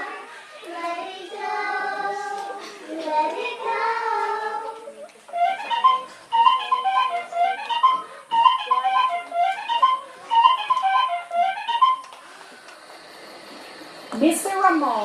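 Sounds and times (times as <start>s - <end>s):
flute-like melody: 4.6s - 12.6s.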